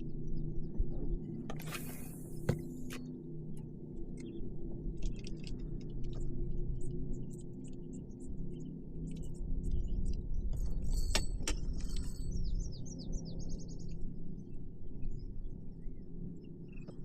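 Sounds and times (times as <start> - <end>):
low steady hum: 0.0 - 17.0
small birds chirping: 4.2 - 17.0.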